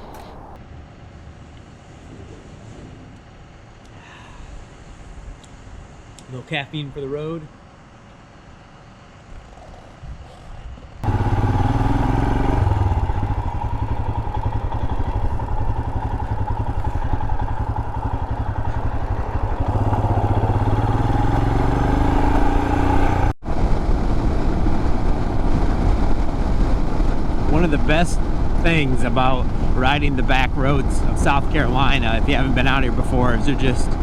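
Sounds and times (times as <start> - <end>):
motorcycle engine running: 11.0 - 34.0.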